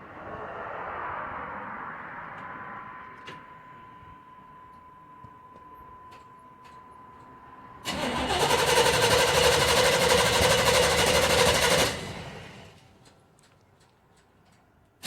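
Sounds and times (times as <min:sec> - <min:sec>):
engine cranking: 0:07.9 - 0:12.8
loud pulsing engine noise: 0:07.9 - 0:12.8.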